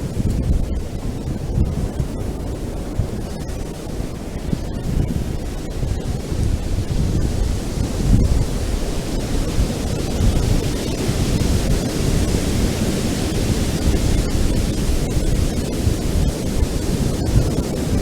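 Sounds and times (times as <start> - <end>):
ocean waves on beach: 0.0 - 18.0
wind rumble on microphone: 0.0 - 18.0.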